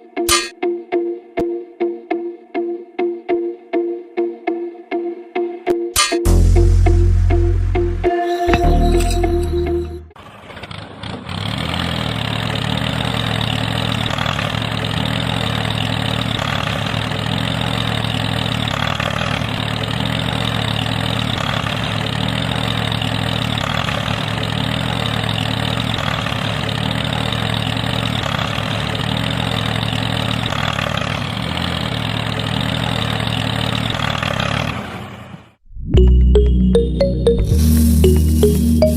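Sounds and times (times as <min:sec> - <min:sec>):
engine idling: 0:06.3 - 0:35.5.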